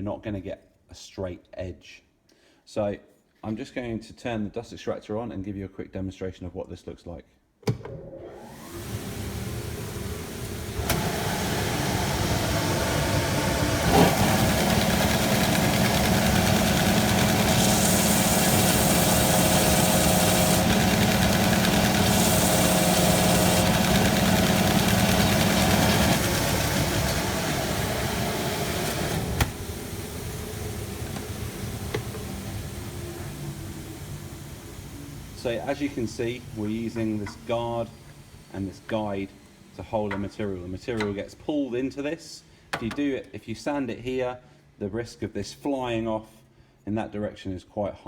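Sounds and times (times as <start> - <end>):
dust extractor hum: 8.0 - 42.9
belt sander motor: 8.2 - 41.2
sanding hiss: 10.3 - 39.6.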